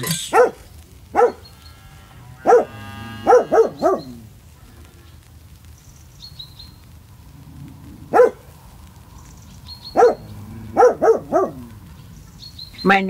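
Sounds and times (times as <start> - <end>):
large dog barking: 0.2 - 1.6, 2.4 - 4.4, 8.0 - 8.6, 9.8 - 11.9.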